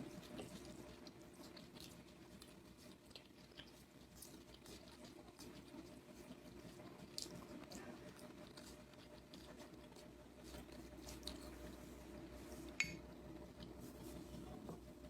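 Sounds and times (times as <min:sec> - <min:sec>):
chewing and wet mouth sounds: 0:00.0 - 0:15.0.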